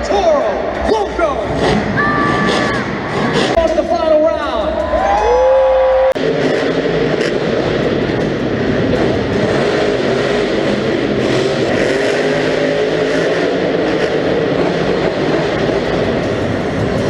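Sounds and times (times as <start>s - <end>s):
monster truck engines revving: 0.0s - 17.0s.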